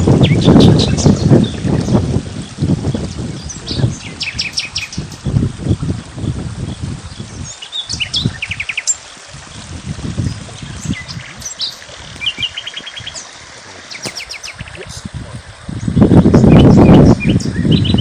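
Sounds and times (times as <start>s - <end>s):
songbirds chirping: 0.2s - 18.0s
bird trills: 13.9s - 14.8s.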